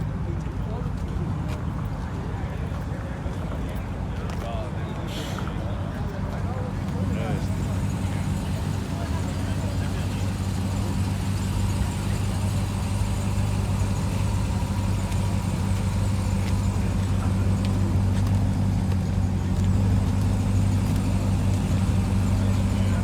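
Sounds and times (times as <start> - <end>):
car engine running: 6.4 - 23.0.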